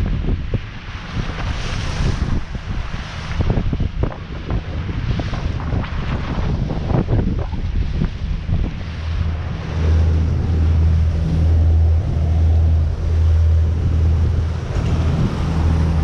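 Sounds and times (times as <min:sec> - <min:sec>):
boat engine drone: 0:00.0 - 0:16.0
wind buffeting microphone: 0:00.0 - 0:16.0.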